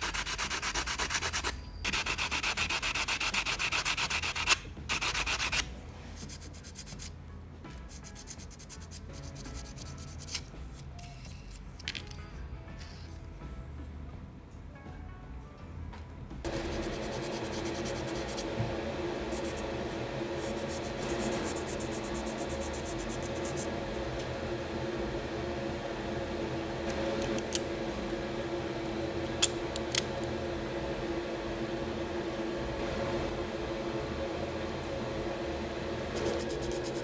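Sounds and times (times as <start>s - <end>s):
small motor humming: 16.5s - 24.3s.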